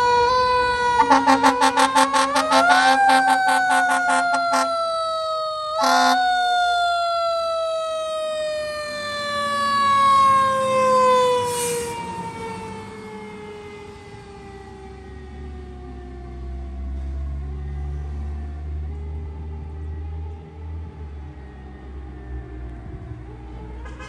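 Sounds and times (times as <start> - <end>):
mechanical siren winding down: 0.0 - 16.7
truck engine rumble: 0.0 - 24.0.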